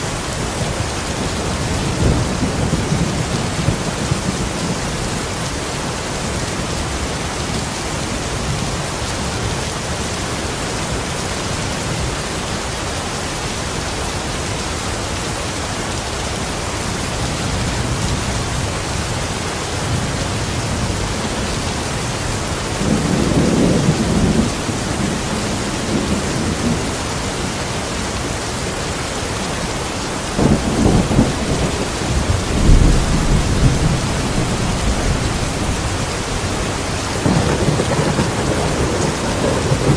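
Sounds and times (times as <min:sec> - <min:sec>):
steady rain: 0:00.0 - 0:39.9
low thunder rumbles: 0:00.1 - 0:05.5, 0:17.1 - 0:27.0, 0:30.3 - 0:39.9.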